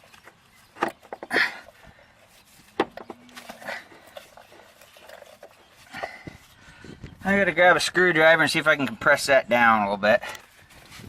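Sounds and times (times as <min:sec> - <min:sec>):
hand tools and metal parts clicking: 0:00.0 - 0:06.6.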